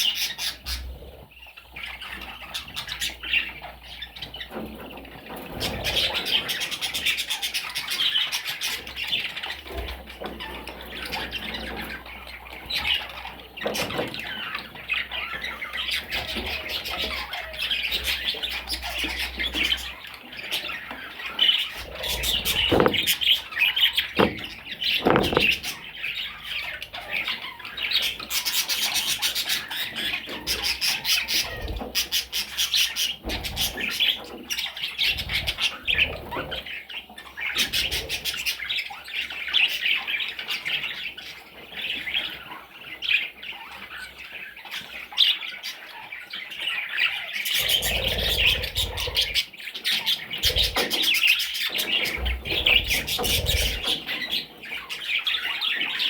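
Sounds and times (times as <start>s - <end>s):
budgerigar chattering and warbling: 5.5s - 40.2s, 47.0s - 56.0s.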